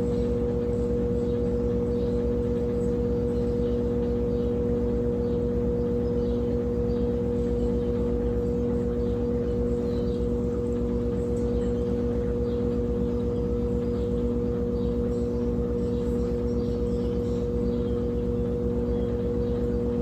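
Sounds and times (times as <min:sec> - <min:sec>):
washing machine spinning: 0:00.0 - 0:20.0.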